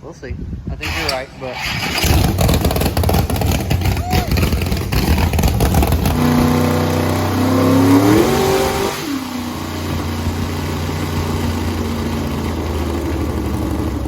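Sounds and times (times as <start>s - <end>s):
engine revving then idling: 0.8s - 14.0s.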